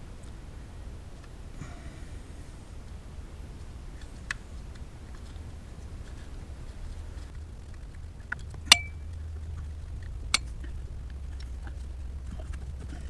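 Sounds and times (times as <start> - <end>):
low steady hum: 0.0 - 13.0
metal tools clinking: 8.7 - 9.0.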